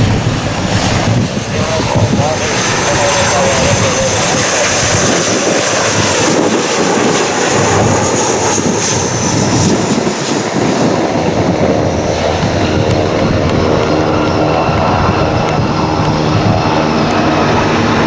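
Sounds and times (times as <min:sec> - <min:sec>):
high engine whine: 0:00.0 - 0:18.0
jet engines roaring: 0:00.0 - 0:18.0.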